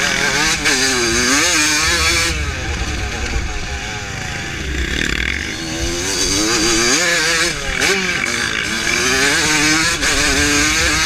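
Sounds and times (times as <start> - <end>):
two-stroke motorcycle engine revving: 0.0 - 11.0.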